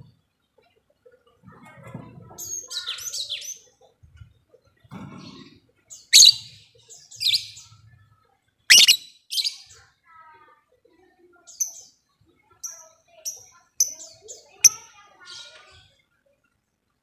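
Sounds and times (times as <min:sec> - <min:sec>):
lovebirds raspy chatter: 0:04.7 - 0:07.8, 0:08.7 - 0:09.9, 0:12.6 - 0:16.1
lovebird shrill shrieks: 0:06.2 - 0:06.4, 0:08.7 - 0:09.0.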